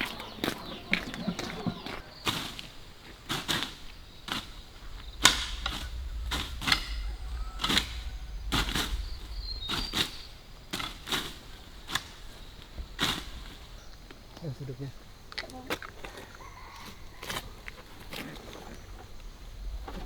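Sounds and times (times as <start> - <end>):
low rumble: 3.8 - 14.3, 18.8 - 20.0.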